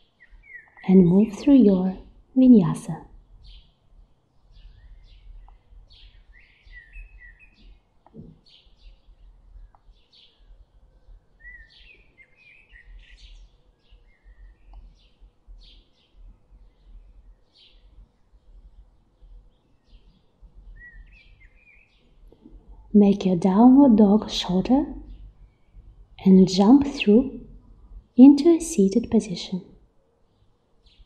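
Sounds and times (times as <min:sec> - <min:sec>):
small birds chirping: 0:00.0 - 0:31.0
faint low rumble: 0:22.1 - 0:29.8.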